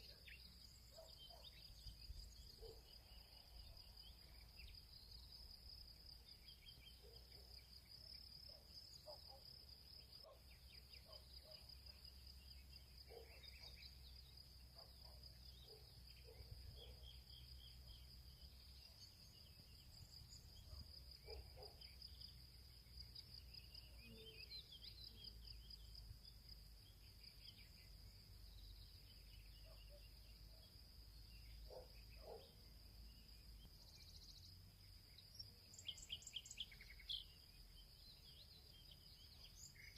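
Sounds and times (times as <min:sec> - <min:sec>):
birds chirping: 0:00.0 - 0:05.2, 0:10.0 - 0:21.8, 0:28.7 - 0:34.5
insects trilling: 0:00.0 - 0:39.9.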